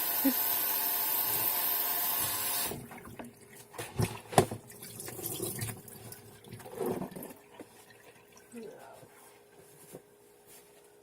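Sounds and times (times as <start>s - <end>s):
water splashing in a sink: 2.2s - 8.6s.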